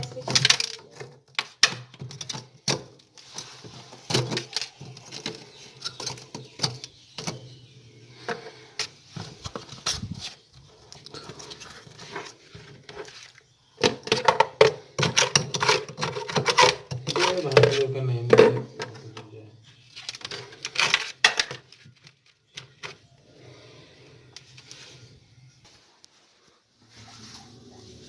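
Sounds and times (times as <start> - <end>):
objects clicking and tapping: 0.0 - 7.6, 13.8 - 19.3, 20.0 - 23.0.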